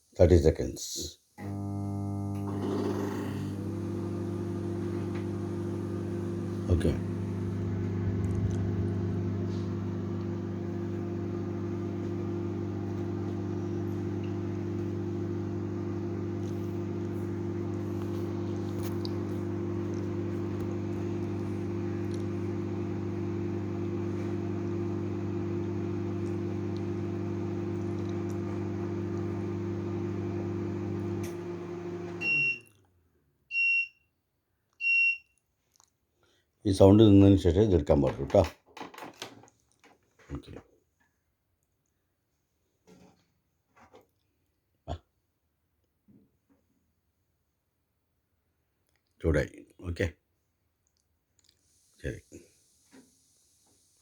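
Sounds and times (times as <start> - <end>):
microwave oven humming: 1.4 - 32.7
high-pitched microwave beeps: 32.2 - 32.7, 33.5 - 34.1, 34.8 - 35.2.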